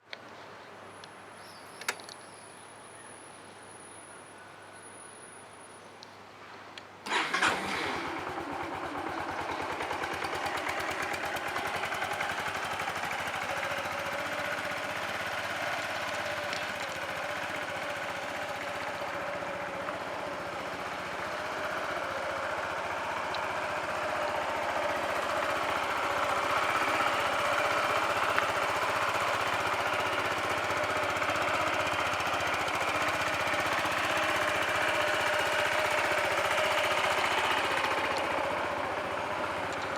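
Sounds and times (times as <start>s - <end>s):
scooter engine starting and idling: 7.0s - 39.9s.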